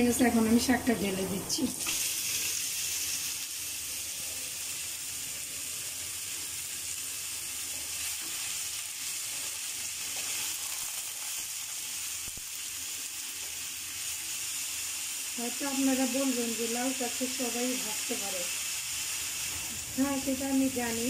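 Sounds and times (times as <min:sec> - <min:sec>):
greens sizzling in hot oil: 0:00.0 - 0:21.0
spatula stirring in pan: 0:07.4 - 0:11.4.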